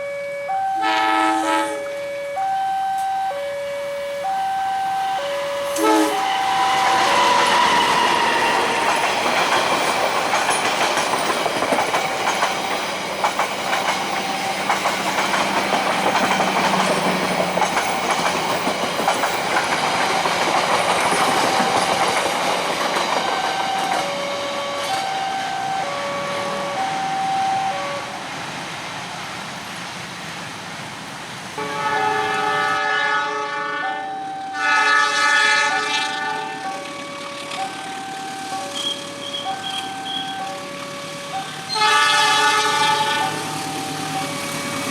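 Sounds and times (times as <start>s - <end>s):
crossing signal two-tone beeps: 0.0s - 8.7s, 14.1s - 14.9s, 23.2s - 27.9s, 33.8s - 34.9s, 36.4s - 42.0s
train horn: 0.4s - 4.1s, 4.8s - 9.0s, 23.4s - 28.2s, 31.6s - 37.8s, 38.6s - 44.9s
train wheels clattering: 5.7s - 25.5s.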